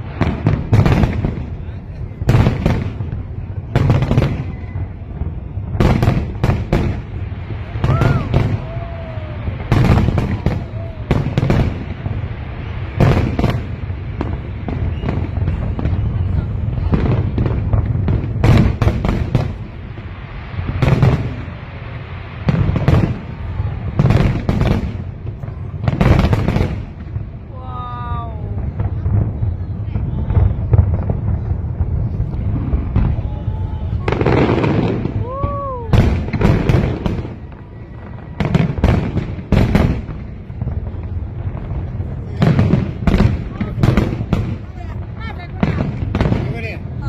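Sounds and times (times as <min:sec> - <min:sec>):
fireworks bangs and crackle: 0:00.0 - 0:47.0
low rumble: 0:26.8 - 0:38.8.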